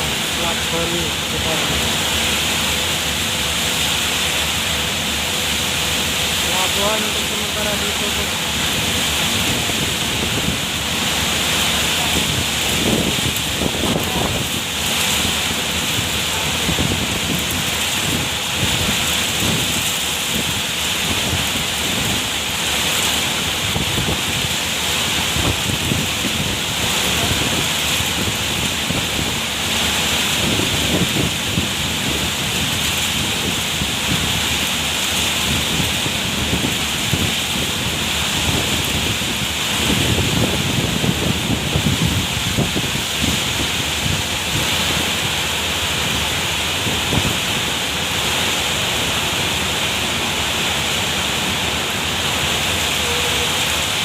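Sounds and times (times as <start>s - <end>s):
heavy rain hissing: 0.0s - 54.0s
wind gusts on microphone: 6.5s - 54.0s.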